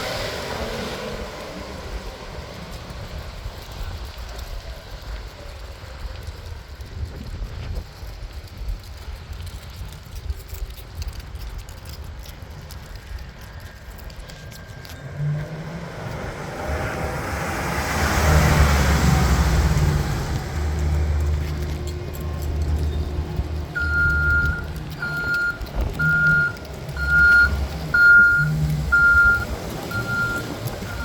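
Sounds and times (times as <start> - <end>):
truck engine rumbling: 0.0 - 9.1, 11.0 - 31.0
rushing noise: 14.5 - 31.0.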